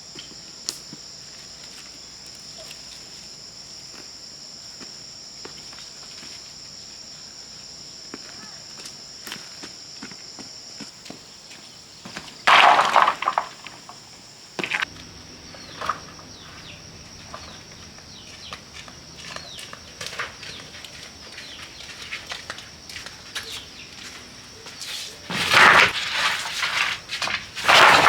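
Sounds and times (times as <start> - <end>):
insects droning: 0.0 - 28.0
loud rustling: 25.3 - 28.0.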